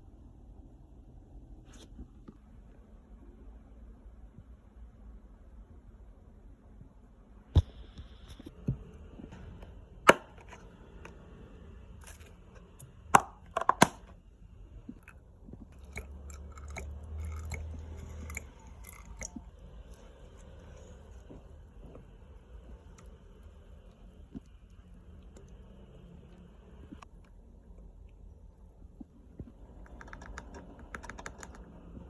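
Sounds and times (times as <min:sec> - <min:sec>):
crunchy chewing: 0:15.0 - 0:21.3.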